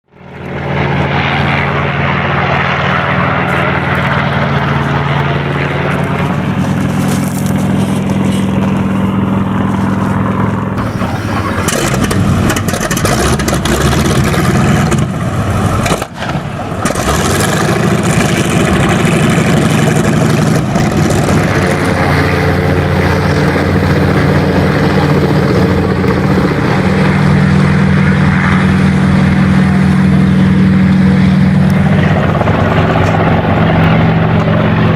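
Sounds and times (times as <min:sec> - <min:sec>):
helicopter engine drone: 0:00.1 - 0:34.9
helicopter rotor beat: 0:00.1 - 0:34.9.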